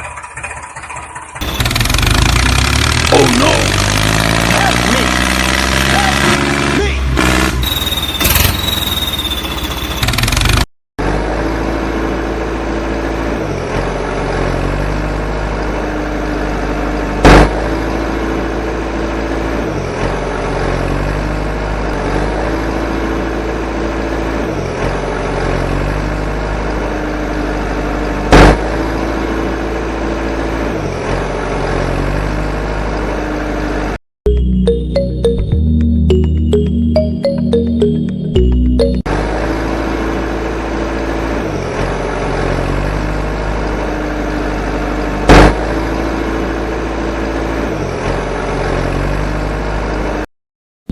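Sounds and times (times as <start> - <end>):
small tractor motor running: 0.0 - 6.2.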